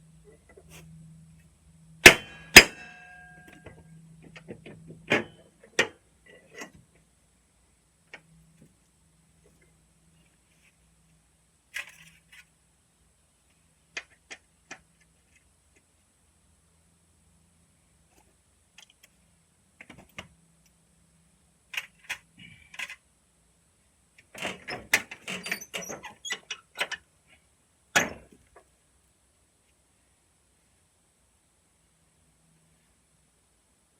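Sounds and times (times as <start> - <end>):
sharp metal clanks: 2.0 - 3.8.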